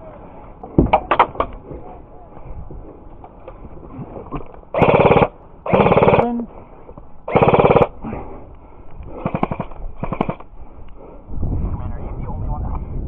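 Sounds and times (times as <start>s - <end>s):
airsoft guns firing bursts: 4.8s - 6.4s, 7.3s - 8.0s, 9.2s - 10.4s.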